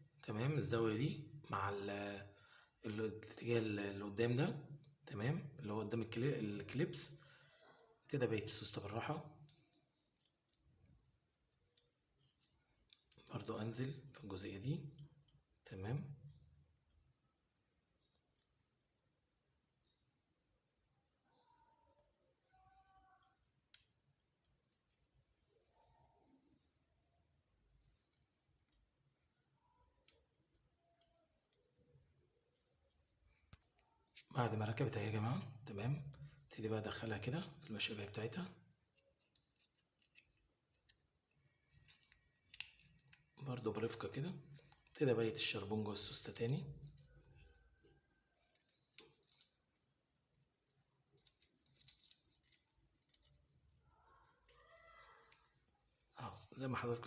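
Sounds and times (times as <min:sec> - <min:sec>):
small parts clicking: 0:09.4 - 0:13.5, 0:17.9 - 0:19.0, 0:23.0 - 0:25.5, 0:27.6 - 0:34.3, 0:38.8 - 0:45.0, 0:46.0 - 0:49.9, 0:50.6 - 0:56.2.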